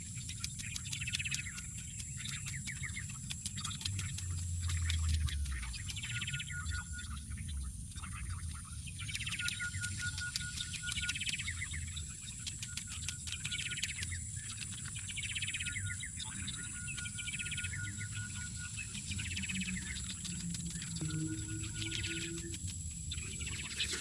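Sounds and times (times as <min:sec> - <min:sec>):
birds singing: 0:00.0 - 0:24.0
steady low hum: 0:00.0 - 0:24.0
bird trilling: 0:19.7 - 0:22.6.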